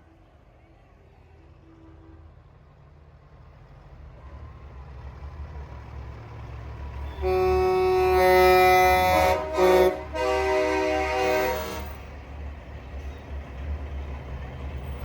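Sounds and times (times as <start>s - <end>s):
diesel truck engine rumbling: 2.4s - 15.0s
air horn blast: 7.2s - 12.1s.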